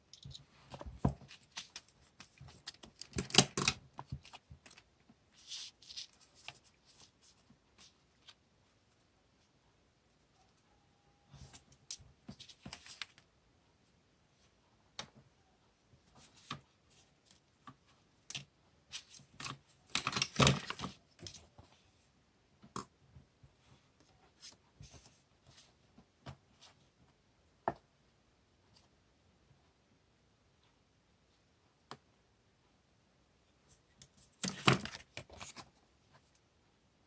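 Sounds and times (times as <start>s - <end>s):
paper rustling and crinkling: 0.6s - 8.4s, 12.3s - 13.2s, 18.9s - 21.7s, 34.2s - 35.7s.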